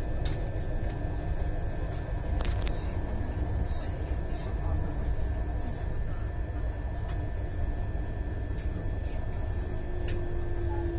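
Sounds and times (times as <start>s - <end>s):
train rumbling in motion: 0.0s - 10.9s.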